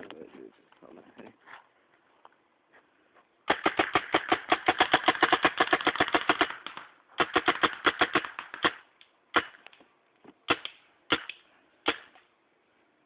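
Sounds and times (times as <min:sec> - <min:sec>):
paintball gun firing: 0:03.5 - 0:09.7, 0:10.5 - 0:12.2.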